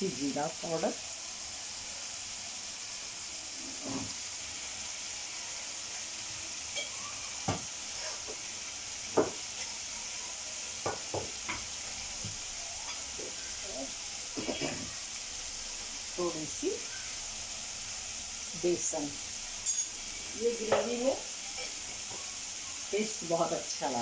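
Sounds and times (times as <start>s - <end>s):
masala sizzling in oil: 0.0s - 24.0s
spatula knocking against the pan: 9.1s - 9.4s, 10.8s - 12.4s.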